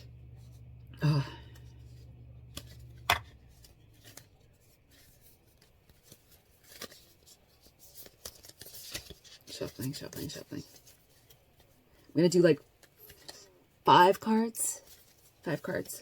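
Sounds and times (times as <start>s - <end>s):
low hum: 0.0s - 4.6s
cards rustling and shuffling: 1.4s - 16.0s.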